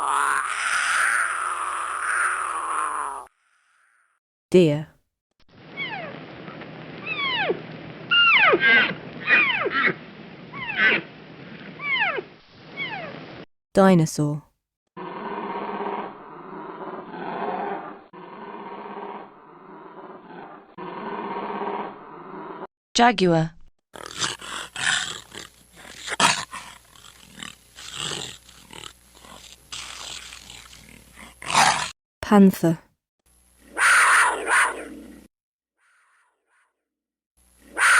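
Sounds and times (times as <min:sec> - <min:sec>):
deer squealing calls: 0:07.0 - 0:11.1, 0:33.8 - 0:34.9
jaguar roaring: 0:15.0 - 0:22.7, 0:24.0 - 0:31.9, 0:33.7 - 0:35.3.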